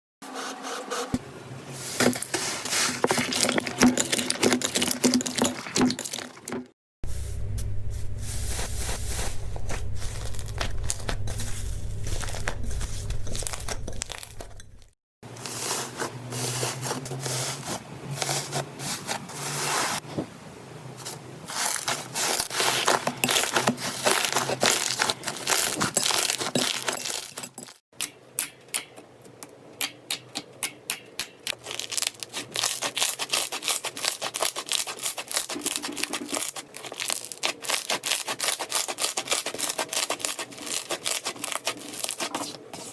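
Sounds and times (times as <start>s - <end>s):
slime crackling and popping: 31.4s - 42.5s.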